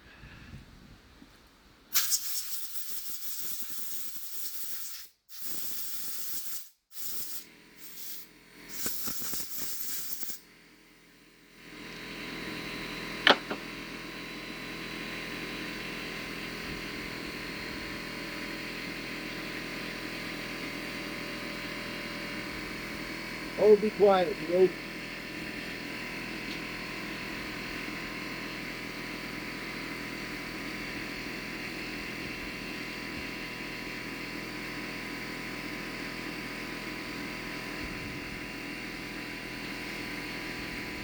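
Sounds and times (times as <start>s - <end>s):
hissing spray: 1.9s - 10.4s.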